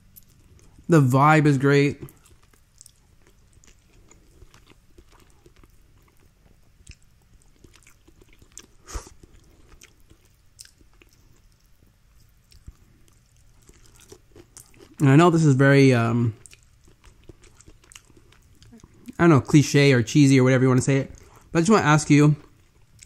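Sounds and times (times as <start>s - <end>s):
person chewing: 0.0s - 0.9s, 2.0s - 15.2s, 16.3s - 19.2s, 22.4s - 23.0s.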